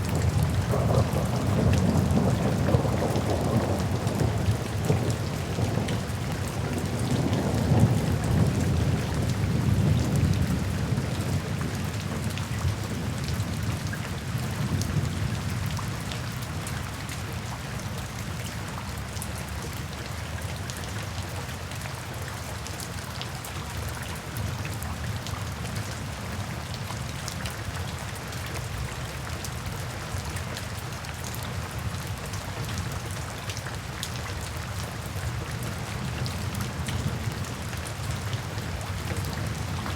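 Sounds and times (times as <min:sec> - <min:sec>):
low rumble of thunder: 0:00.0 - 0:17.0, 0:33.8 - 0:39.9
steady rain falling: 0:00.0 - 0:39.9.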